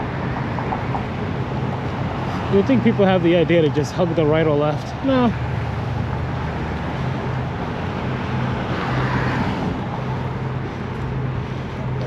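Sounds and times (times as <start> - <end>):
road traffic noise: 0.0 - 12.0
vehicle passing: 0.0 - 12.0
low steady hum: 9.9 - 12.0.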